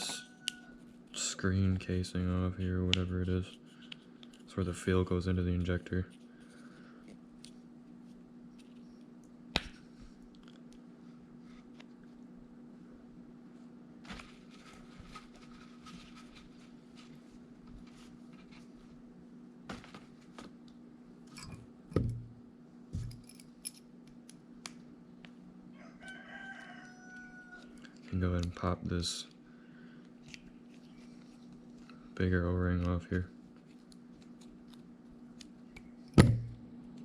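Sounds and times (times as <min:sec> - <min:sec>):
steady low hum: 0:00.0 - 0:26.1, 0:27.5 - 0:37.0.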